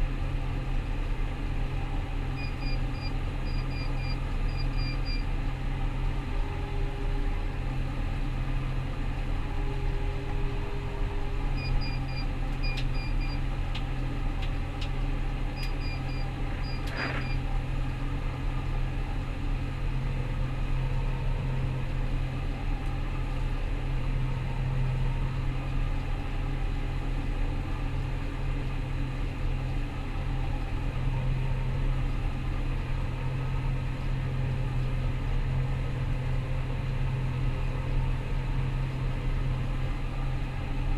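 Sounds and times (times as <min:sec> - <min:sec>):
combine harvester engine drone: 0:00.0 - 0:40.9.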